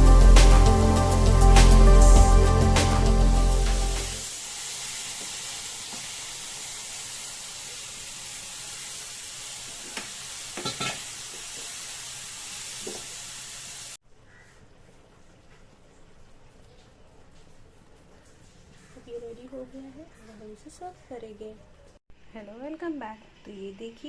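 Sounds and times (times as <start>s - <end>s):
background music: 0.0s - 4.2s
curry sizzling in pan: 0.0s - 14.0s.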